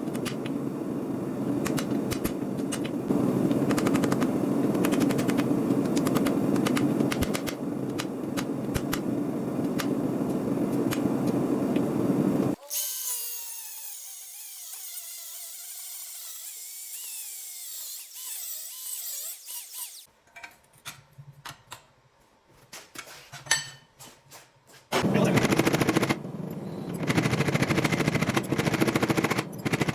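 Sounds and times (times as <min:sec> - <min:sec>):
sharp metallic clicks and impacts: 0:01.6 - 0:09.9, 0:25.3 - 0:29.9.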